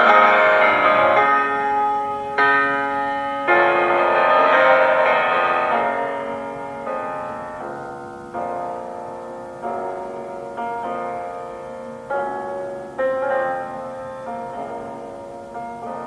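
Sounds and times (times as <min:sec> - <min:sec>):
slow soft piano chords: 0:00.0 - 0:16.0.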